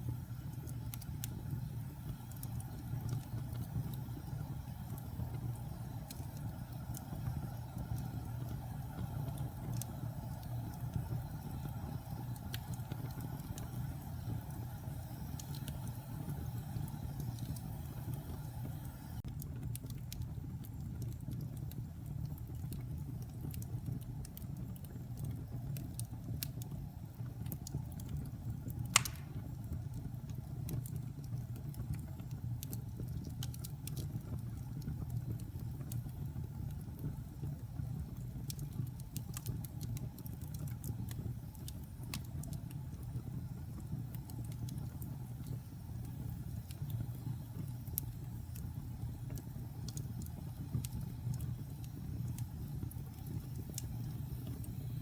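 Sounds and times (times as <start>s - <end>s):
fire crackling and rumbling: 0.0s - 55.0s
sharp pop from fire: 28.9s - 29.6s.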